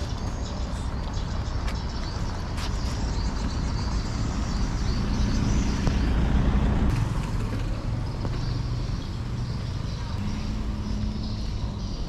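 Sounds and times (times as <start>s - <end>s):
road and wind noise: 0.0s - 12.0s
motorcycle engine running: 4.3s - 12.0s.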